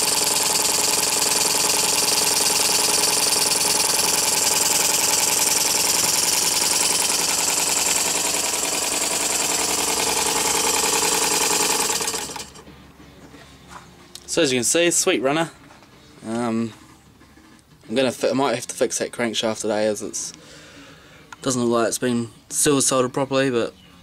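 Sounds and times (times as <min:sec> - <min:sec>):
model steam engine chuffing: 0:00.0 - 0:12.6.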